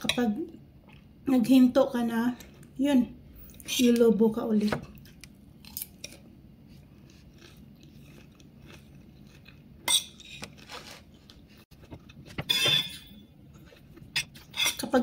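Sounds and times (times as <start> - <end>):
chewing with soft crunching: 5.0 - 9.8
metal spoon scraping a plate: 14.2 - 14.9.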